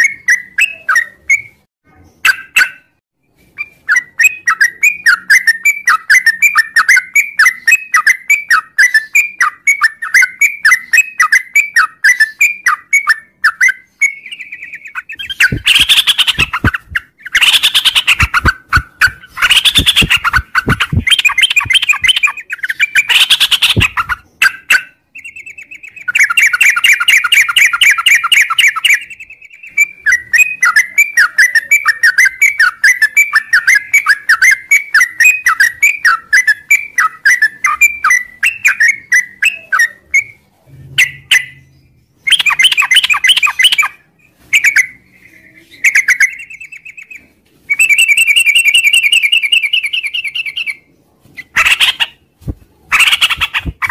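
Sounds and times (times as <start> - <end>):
bulbul chattering song: 0.0 - 47.2.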